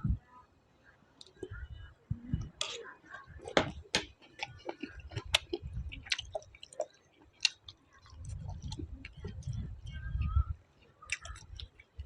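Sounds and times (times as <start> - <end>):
person chewing crunchy food: 3.5 - 10.2, 10.8 - 12.0.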